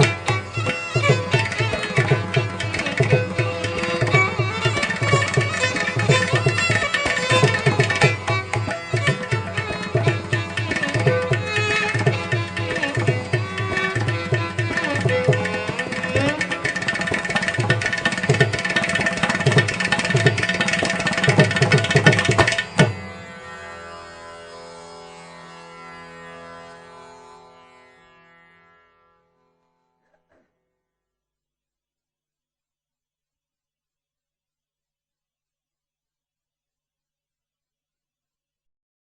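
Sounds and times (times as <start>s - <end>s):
hand drum strokes: 0.0s - 23.0s
plucked string melody: 0.0s - 24.2s.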